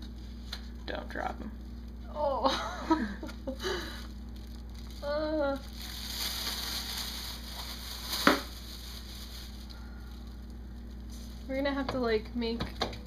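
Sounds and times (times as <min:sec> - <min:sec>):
plastic bag crinkling: 0:03.7 - 0:11.6.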